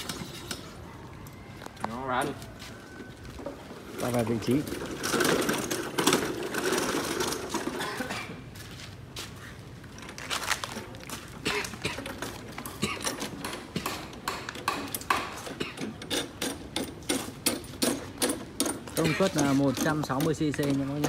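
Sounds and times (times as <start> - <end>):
lawn mower clicks and knocks: 11.7 - 21.0.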